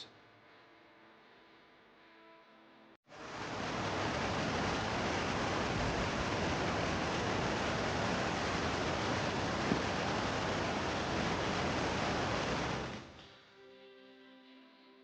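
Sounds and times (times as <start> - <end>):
river rapids rushing: 3.2 - 13.0.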